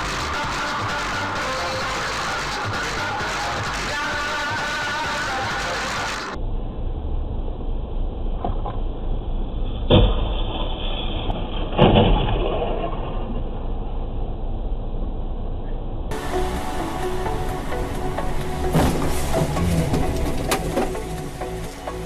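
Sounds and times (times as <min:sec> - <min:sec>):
car road and engine rumble: 0:05.1 - 0:22.0
vehicle collision impacts: 0:08.3 - 0:13.1, 0:16.1 - 0:22.0.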